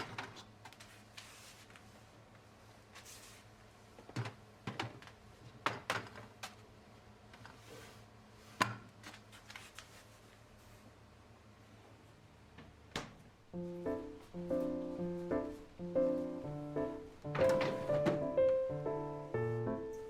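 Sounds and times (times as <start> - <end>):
soft rustles: 0.7 - 3.6.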